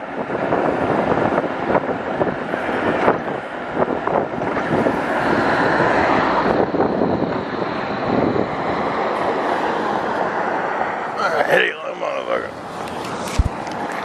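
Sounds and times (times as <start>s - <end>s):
wind on microphone: 0.0s - 11.2s, 12.5s - 14.0s
road noise: 0.0s - 14.0s.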